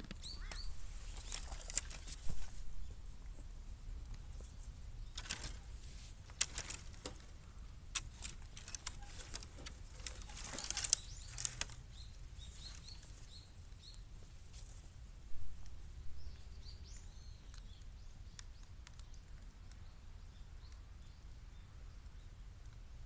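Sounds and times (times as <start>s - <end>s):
bamboo fire crackling and popping: 5.0s - 14.0s.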